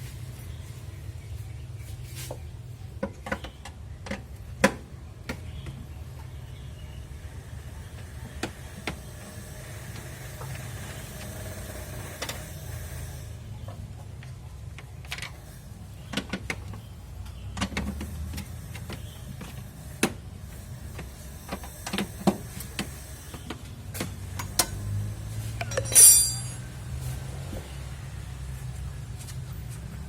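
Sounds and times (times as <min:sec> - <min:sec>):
metallic clicks of hand tools: 0:25.6 - 0:26.6.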